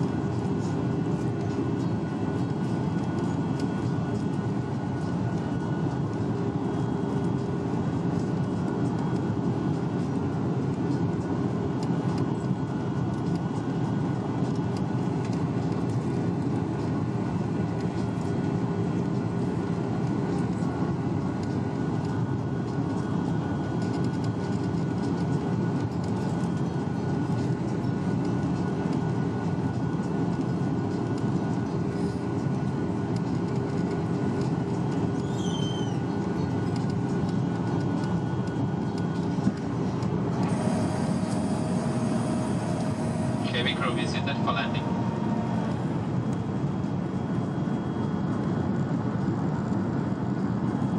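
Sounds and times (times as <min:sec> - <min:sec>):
airplane cabin roar: 0:00.0 - 0:50.9
faint steady hum: 0:30.1 - 0:47.1.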